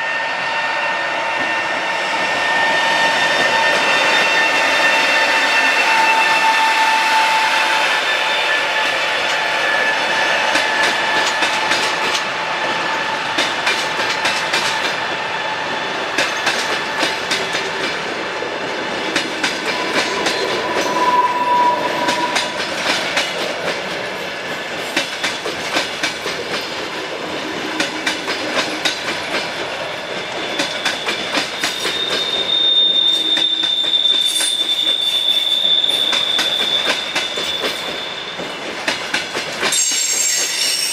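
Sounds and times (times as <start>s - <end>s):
metallic wheel squeal: 0.0s - 10.2s, 19.7s - 22.6s, 30.2s - 38.6s, 39.7s - 40.9s
train wheels clicking over rail joints: 10.4s - 15.1s, 16.0s - 18.2s, 18.9s - 21.0s, 22.0s - 40.6s.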